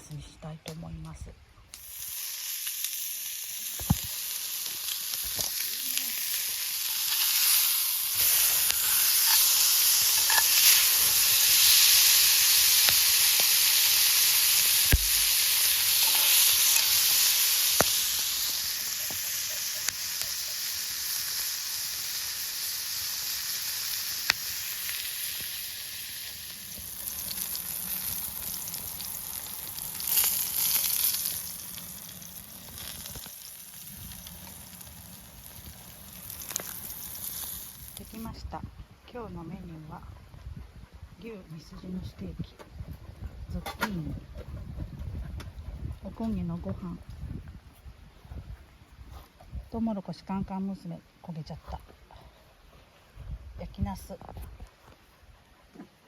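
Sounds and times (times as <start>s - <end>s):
meat and vegetables sizzling: 1.7s - 38.4s
sharp pops: 3.6s - 6.1s, 14.8s - 15.4s.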